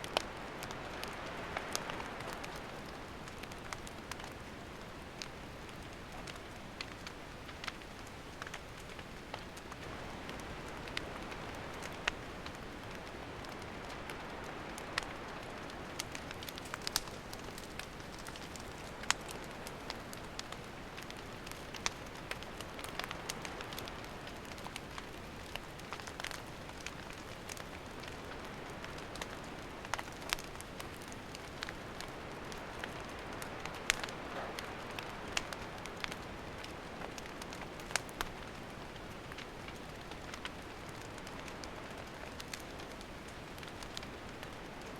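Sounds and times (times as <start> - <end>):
campfire hissing and crackling: 0.0 - 44.9.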